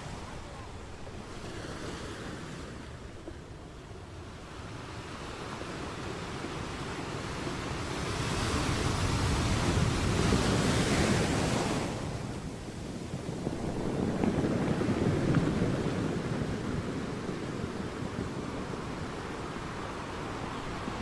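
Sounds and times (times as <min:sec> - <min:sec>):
sea waves washing ashore: 0:00.0 - 0:21.0.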